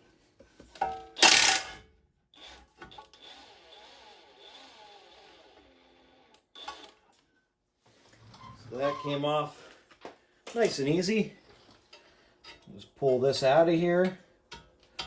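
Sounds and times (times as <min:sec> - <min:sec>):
impact wrench hammering: 0:01.2 - 0:01.8.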